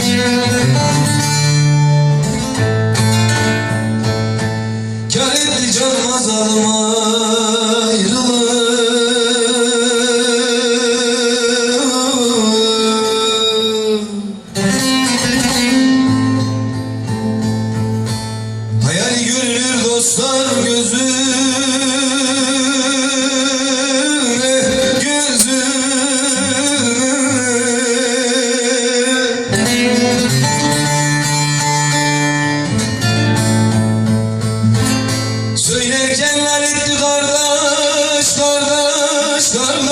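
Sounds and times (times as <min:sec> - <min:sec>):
plucked strings: 0:00.0 - 0:06.9, 0:13.0 - 0:39.9
man singing long note: 0:05.1 - 0:15.8.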